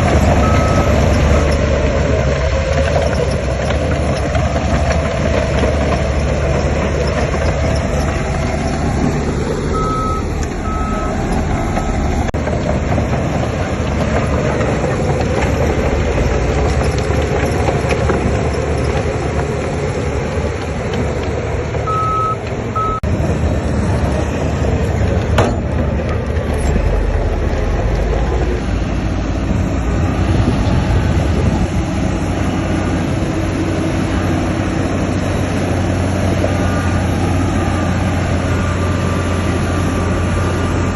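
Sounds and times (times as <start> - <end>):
heavy diesel machinery running: 0.0 - 40.9
reversing alarm beeping: 0.4 - 1.6, 9.7 - 12.1, 21.9 - 23.1.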